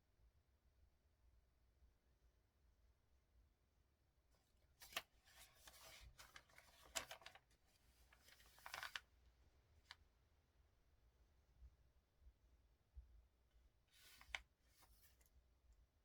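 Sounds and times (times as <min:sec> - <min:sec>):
paper rustling: 0:04.8 - 0:09.0, 0:14.0 - 0:15.2.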